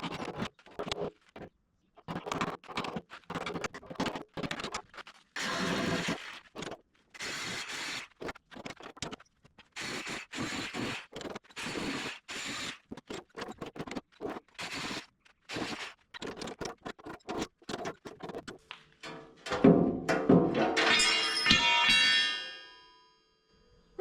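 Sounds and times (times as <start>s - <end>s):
steel being cut scraping: 5.4s - 9.1s, 9.7s - 18.6s.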